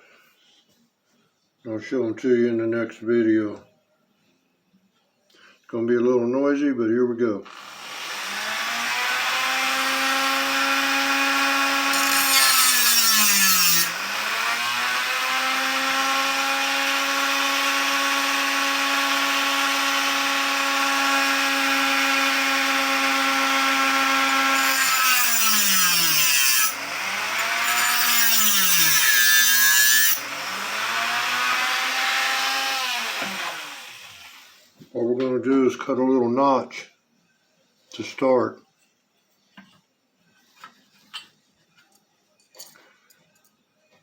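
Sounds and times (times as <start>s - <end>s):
rotary tool whining: 7.5s - 16.6s, 22.6s - 34.6s.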